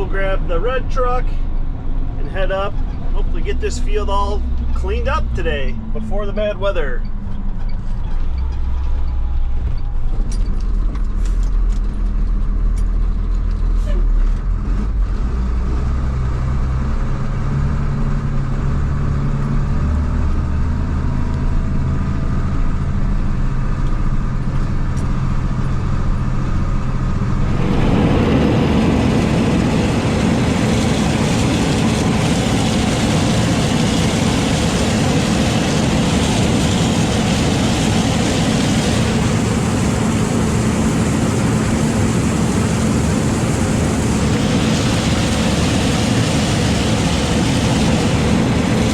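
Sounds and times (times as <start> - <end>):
rushing machine drone: 0.0 - 11.0, 17.0 - 48.9
farm vehicle engine humming: 0.0 - 48.9.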